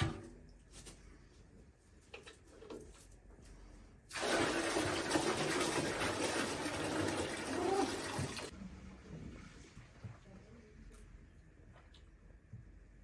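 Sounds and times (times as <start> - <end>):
water pouring: 4.1 - 8.5.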